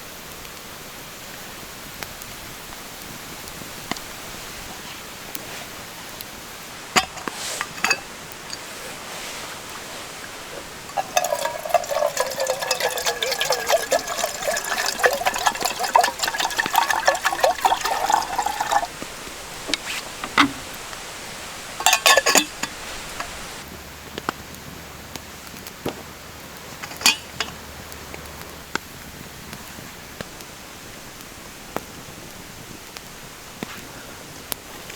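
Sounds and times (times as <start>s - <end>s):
short clinks and knocks: 7.0s - 8.7s, 10.9s - 18.9s, 19.6s - 20.7s, 21.8s - 23.4s, 26.7s - 27.6s
water pouring into container: 7.0s - 23.6s.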